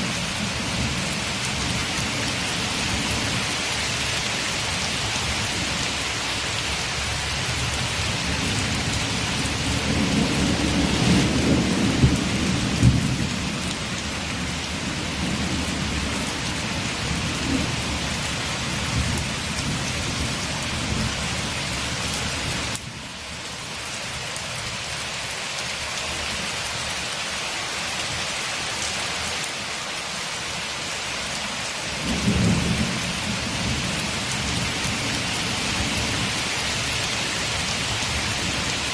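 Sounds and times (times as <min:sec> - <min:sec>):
heavy rain on a window: 0:00.0 - 0:38.9
low rolling thunder: 0:08.2 - 0:21.2, 0:32.0 - 0:36.5.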